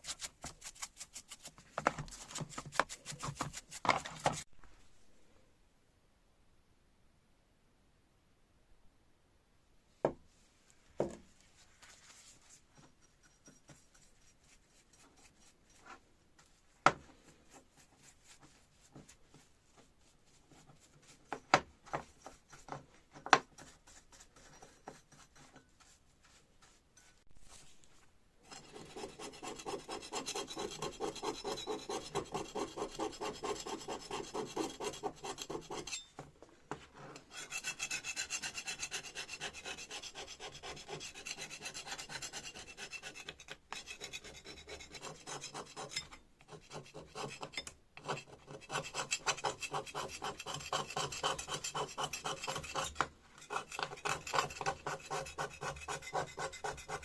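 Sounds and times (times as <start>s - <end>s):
fast rubbing strokes on metal: 37.3s - 57.0s.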